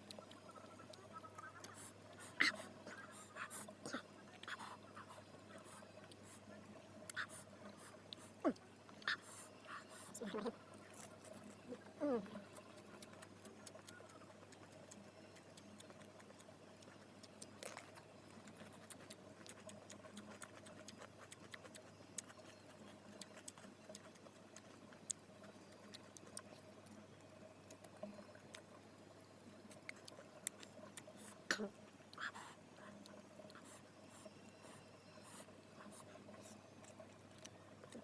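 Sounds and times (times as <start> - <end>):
person eating and chewing: 0.0 - 6.5, 7.1 - 27.0, 29.6 - 31.4
faint steady hum: 0.0 - 38.0.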